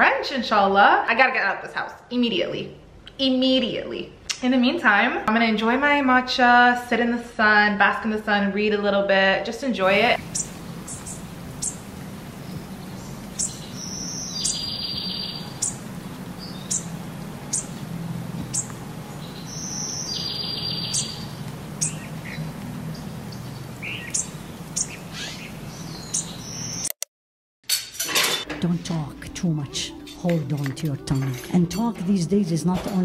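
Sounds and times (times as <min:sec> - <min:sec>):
low steady hum: 0:09.8 - 0:26.4
songbirds chirping: 0:09.8 - 0:26.9.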